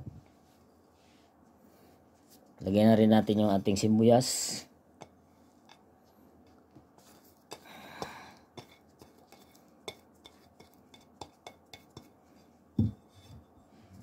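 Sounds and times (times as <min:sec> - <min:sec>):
knock: 0:12.8 - 0:13.0.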